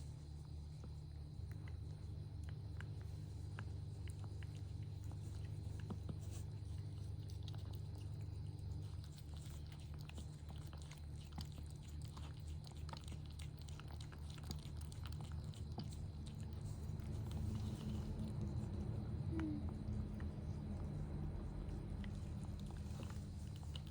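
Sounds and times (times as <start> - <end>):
cat chewing and licking: 0.0 - 23.9
low pulsing hum: 14.8 - 23.9.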